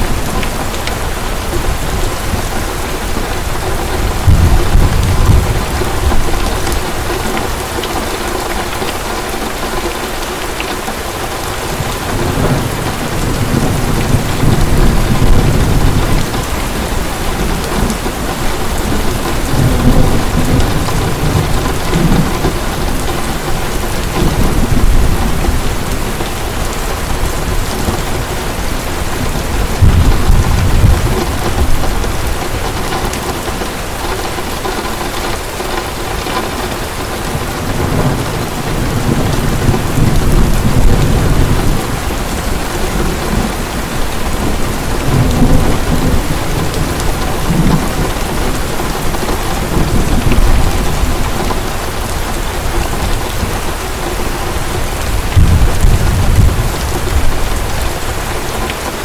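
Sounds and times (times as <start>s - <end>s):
thunder rumbling: 0.0s - 8.9s, 11.2s - 59.0s
heavy rain falling: 0.0s - 59.0s.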